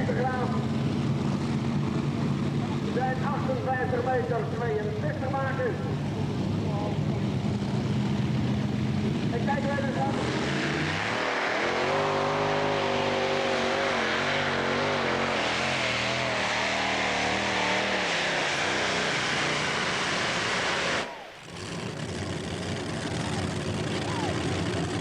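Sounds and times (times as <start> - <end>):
tractor engine revving under load: 5.9 - 25.0.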